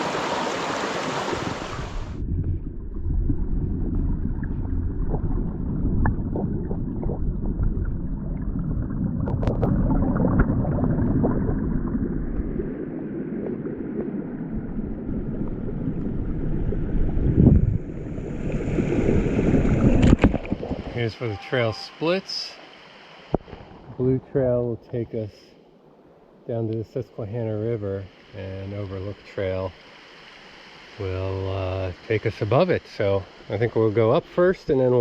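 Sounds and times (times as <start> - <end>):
rushing stream rumble: 0.0 - 25.3, 26.0 - 35.0
wind buffeting microphone: 14.6 - 21.0.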